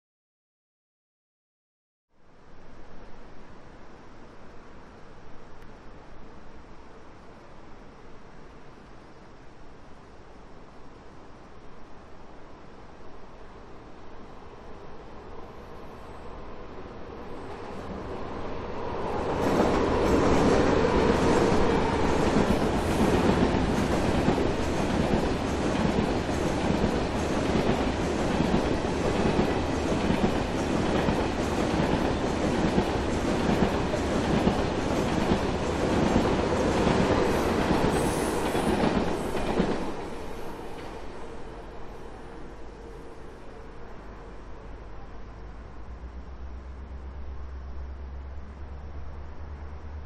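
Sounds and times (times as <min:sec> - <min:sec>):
train passing rumble: 0:12.0 - 0:50.0.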